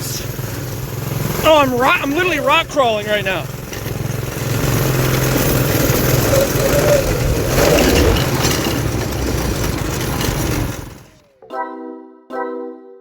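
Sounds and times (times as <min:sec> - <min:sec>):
small engines running: 0:00.0 - 0:11.4.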